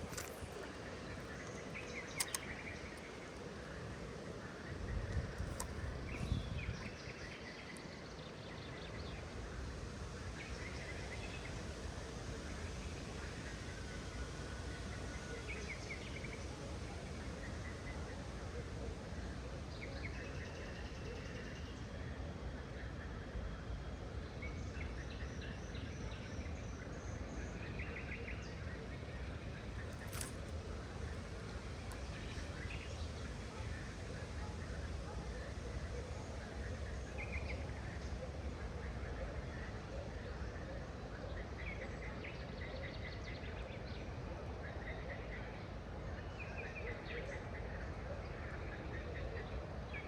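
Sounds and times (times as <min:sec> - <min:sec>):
small birds chirping: 0:00.0 - 0:12.0, 0:24.8 - 0:39.9.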